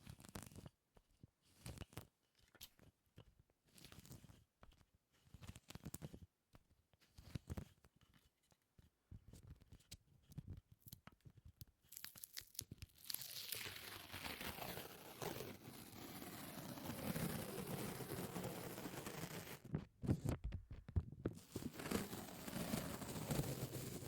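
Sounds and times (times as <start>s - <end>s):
sticky crackling tearing sound: 11.9s - 19.5s.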